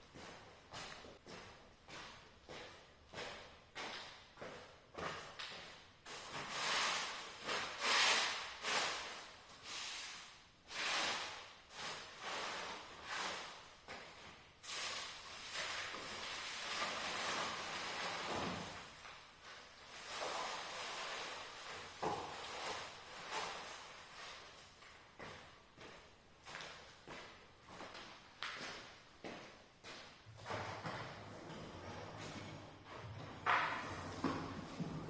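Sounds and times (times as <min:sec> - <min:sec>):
broom sweeping floor: 0:06.0 - 0:26.1, 0:29.9 - 0:35.0.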